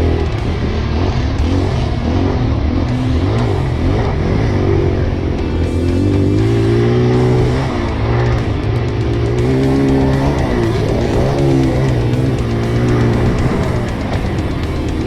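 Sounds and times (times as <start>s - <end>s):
motocross bike engine revving: 0.0s - 15.0s
rock guitar music: 0.0s - 15.0s.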